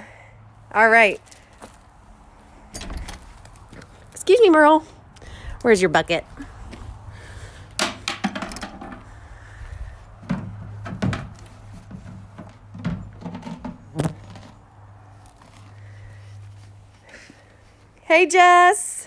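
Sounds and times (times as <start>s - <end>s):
knocks and thuds in bucket: 7.7s - 9.2s, 10.2s - 14.8s.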